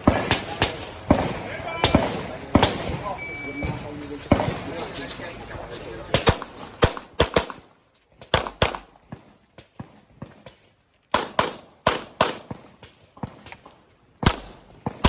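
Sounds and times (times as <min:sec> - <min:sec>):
handgun shots: 0:06.2 - 0:07.6, 0:08.3 - 0:08.9, 0:11.1 - 0:13.6, 0:14.2 - 0:15.0.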